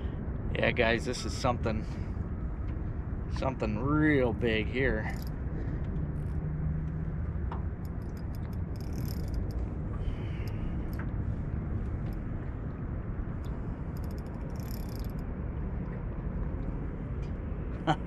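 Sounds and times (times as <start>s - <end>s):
fishing reel ticking: 5.0s - 5.3s, 7.8s - 11.0s, 13.9s - 15.2s.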